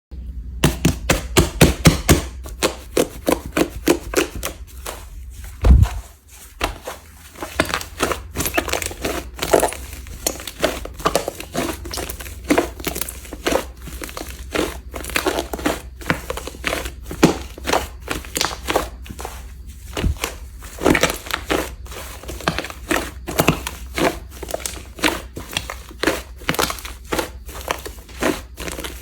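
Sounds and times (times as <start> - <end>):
heavy thump: 5.6 - 6.1.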